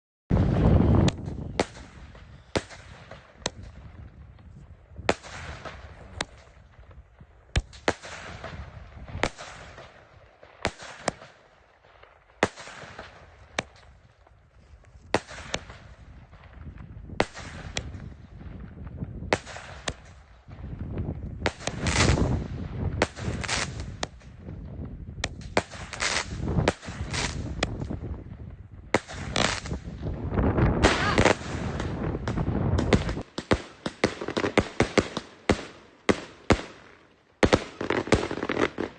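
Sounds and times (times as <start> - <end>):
fireworks bangs: 0.3 - 14.4, 15.1 - 38.9
fireworks crackling: 0.3 - 38.9.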